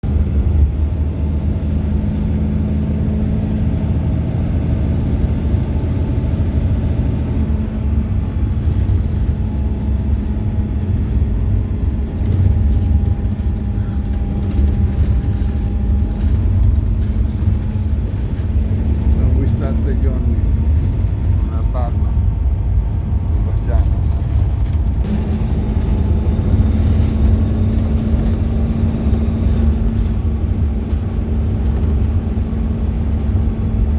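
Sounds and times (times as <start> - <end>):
bus engine running: 0.0 - 33.9
low road rumble: 0.0 - 33.9
light clicks and rattles: 12.0 - 33.5.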